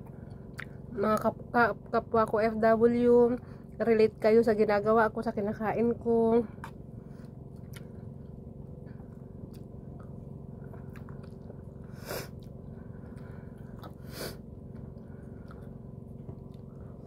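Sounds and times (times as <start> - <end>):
steady low hum: 0.0 - 17.0
person chewing food: 6.6 - 17.0.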